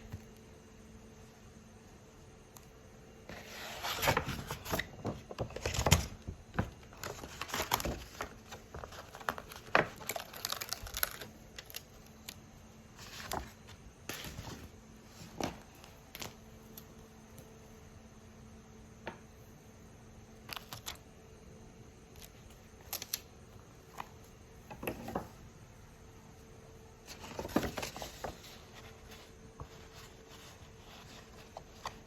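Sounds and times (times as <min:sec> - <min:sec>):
packaging crinkling and rustling: 0:03.4 - 0:12.4.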